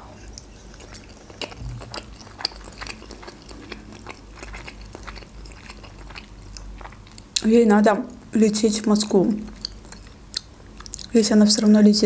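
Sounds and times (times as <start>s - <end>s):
person chewing: 0.2s - 7.5s, 9.4s - 11.2s.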